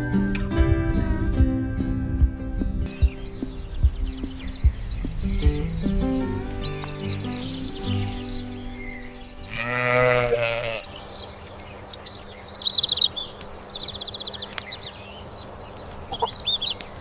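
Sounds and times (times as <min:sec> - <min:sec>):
small birds chirping and trilling: 0:02.9 - 0:17.0
sheep bleating: 0:09.5 - 0:11.0.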